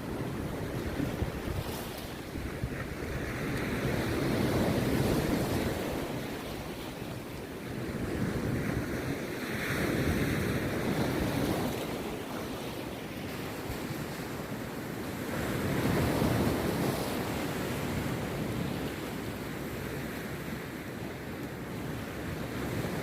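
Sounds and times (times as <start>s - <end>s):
sea surf breaking on beach: 0.0s - 23.0s.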